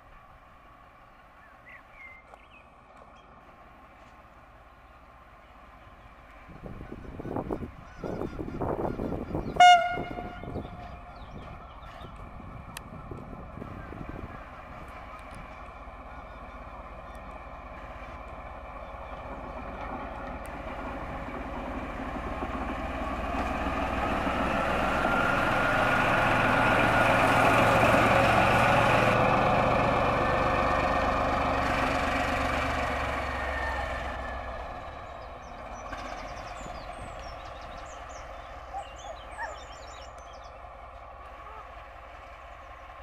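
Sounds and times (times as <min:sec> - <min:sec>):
train passing: 0:00.0 - 0:43.0.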